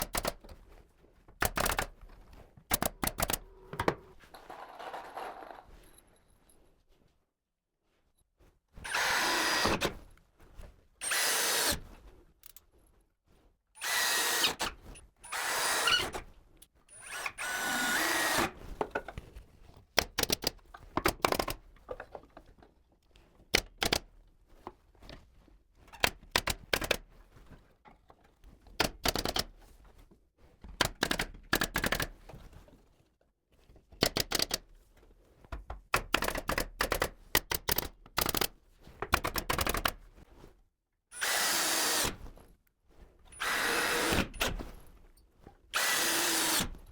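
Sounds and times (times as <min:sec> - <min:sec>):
sharp knocks and clicks: 0:00.0 - 0:00.5, 0:01.4 - 0:01.9, 0:02.7 - 0:04.1, 0:20.0 - 0:22.1, 0:26.0 - 0:27.0, 0:34.0 - 0:34.6, 0:35.6 - 0:40.0
power drill running: 0:08.9 - 0:09.9, 0:11.0 - 0:11.8, 0:13.8 - 0:16.2, 0:16.9 - 0:18.6, 0:41.2 - 0:42.2, 0:43.4 - 0:44.4, 0:45.8 - 0:46.7.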